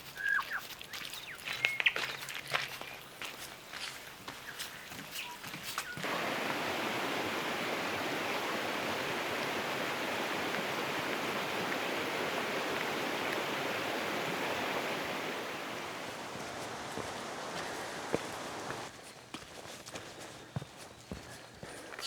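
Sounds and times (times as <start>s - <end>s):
stream rushing over rocks: 6.0s - 18.9s.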